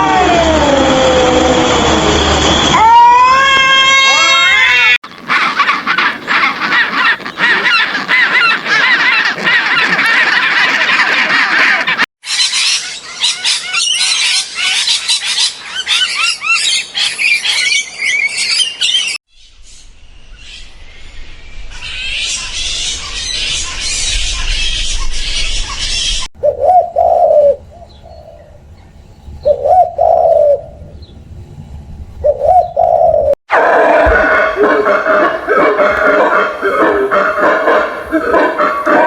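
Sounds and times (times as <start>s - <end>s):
birds honking: 4.6s - 14.9s, 33.5s - 39.0s
flock of birds chattering: 5.1s - 16.8s, 33.6s - 39.0s
birds chirping: 5.1s - 19.2s, 32.2s - 39.0s.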